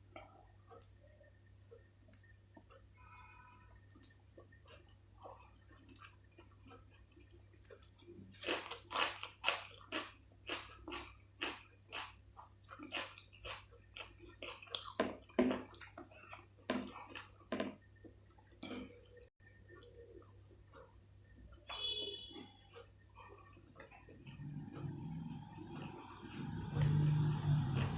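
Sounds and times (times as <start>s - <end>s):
faint low hum: 0.0s - 27.9s
person chewing food: 1.7s - 27.9s.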